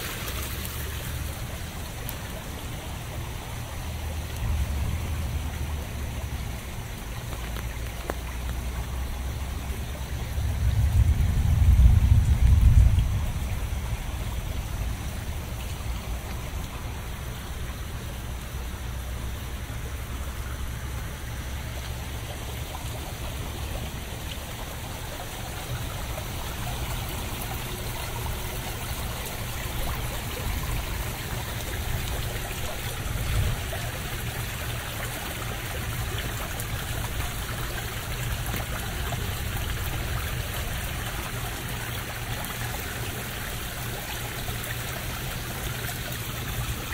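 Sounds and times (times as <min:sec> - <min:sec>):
runoff water trickling: 0:00.0 - 0:46.9
steady rain falling: 0:00.0 - 0:46.9
low rumble: 0:10.1 - 0:17.2.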